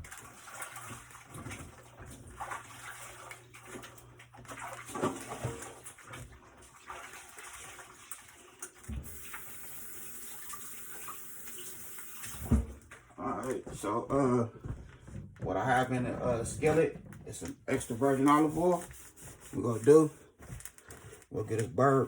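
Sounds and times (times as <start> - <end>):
tap running over hands: 14.5 - 16.0.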